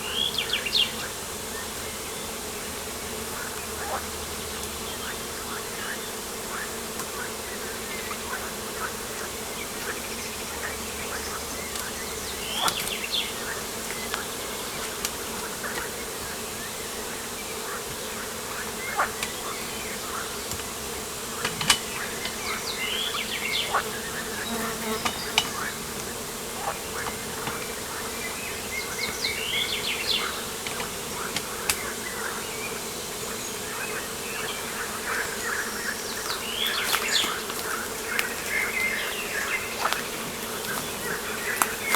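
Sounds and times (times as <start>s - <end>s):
insects buzzing: 0.0s - 41.9s
birds chirping and calling: 9.8s - 15.9s, 21.8s - 41.9s.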